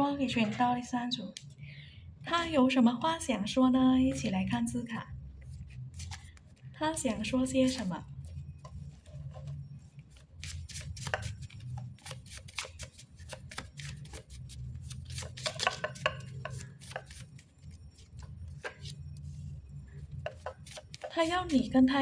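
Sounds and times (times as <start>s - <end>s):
low hum: 0.0s - 12.1s, 15.7s - 20.6s
cards being shuffled: 5.9s - 6.5s, 10.2s - 19.0s, 20.3s - 21.3s.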